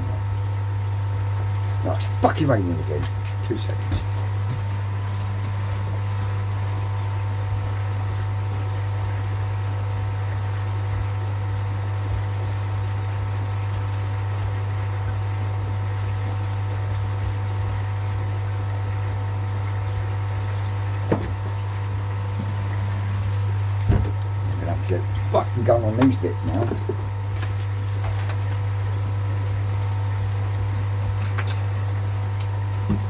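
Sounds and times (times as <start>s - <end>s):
equipment low hum: 20.0s - 33.0s.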